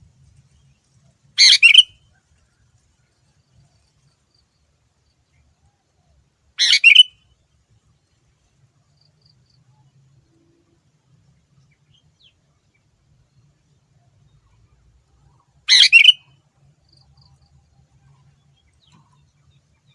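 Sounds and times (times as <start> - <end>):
bird harsh call: 1.4 - 1.9, 6.6 - 7.1, 15.7 - 16.2.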